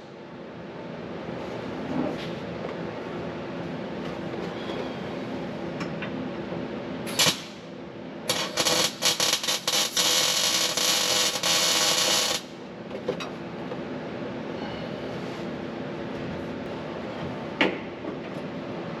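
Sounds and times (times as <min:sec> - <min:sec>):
low shop hum: 0:00.0 - 0:19.0
welder arc crackling: 0:07.2 - 0:07.6, 0:08.3 - 0:12.5.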